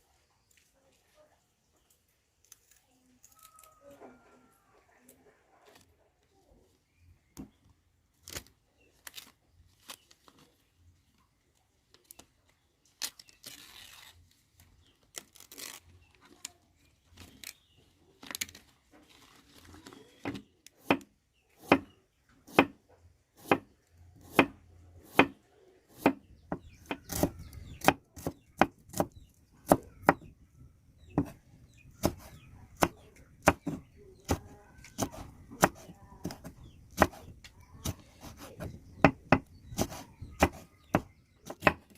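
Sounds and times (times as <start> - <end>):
knife chopping on cutting board: 20.8 - 21.9, 22.5 - 22.8, 23.4 - 30.2, 31.2 - 31.4, 32.0 - 41.8.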